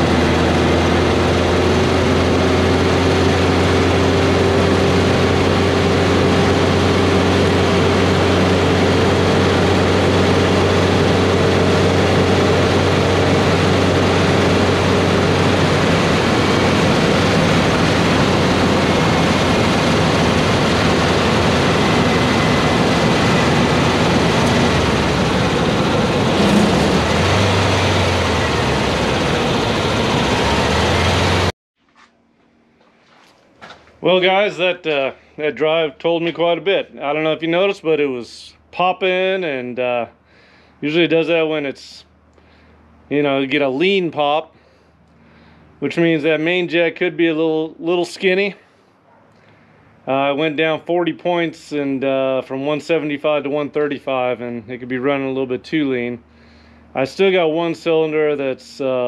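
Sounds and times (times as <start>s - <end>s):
car engine running: 0.0s - 31.5s
road and wind noise: 0.0s - 31.5s.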